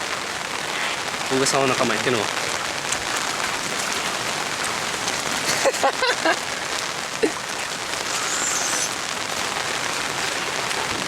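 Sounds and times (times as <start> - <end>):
rain falling steadily: 0.0 - 11.0.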